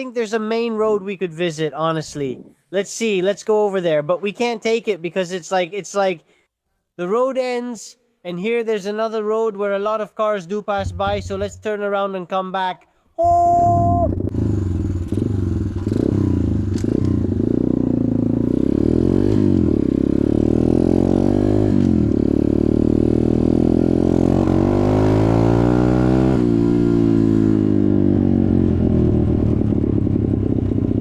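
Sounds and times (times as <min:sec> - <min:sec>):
motorcycle engine revving: 0:10.8 - 0:11.7, 0:14.0 - 0:31.0.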